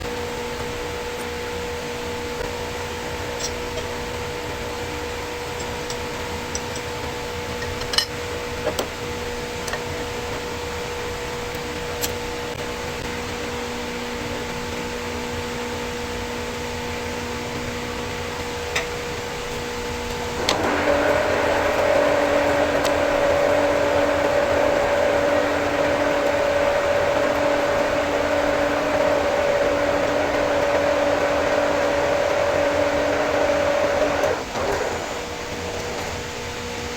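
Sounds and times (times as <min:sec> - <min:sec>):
lathe high whine: 0:12.5 - 0:36.9
lathe motor hum: 0:15.4 - 0:36.9.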